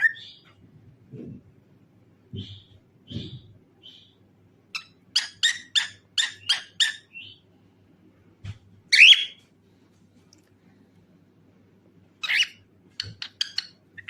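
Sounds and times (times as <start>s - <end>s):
cockatiel harsh chirps: 8.9s - 9.4s, 12.2s - 13.8s.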